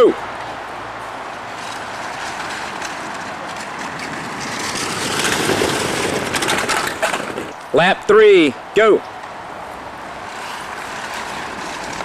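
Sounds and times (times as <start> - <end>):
model cars rolling on track: 1.0 - 7.8, 9.7 - 12.0.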